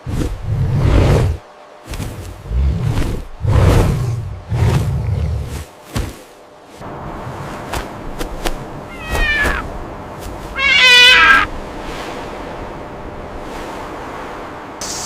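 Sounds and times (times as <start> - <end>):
background hiss: 0.4 - 15.0
meow-like animal calls: 8.9 - 9.7, 10.5 - 11.5.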